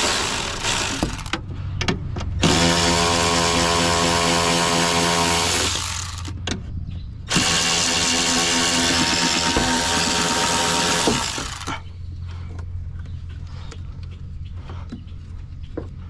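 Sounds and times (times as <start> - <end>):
power tool motor running: 0.0 - 1.4, 2.4 - 6.4, 7.3 - 11.8.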